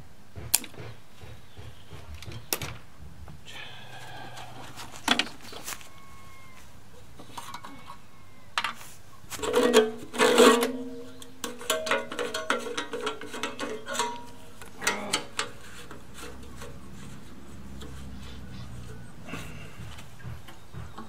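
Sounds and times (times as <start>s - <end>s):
metal tools clanking: 9.4s - 17.0s.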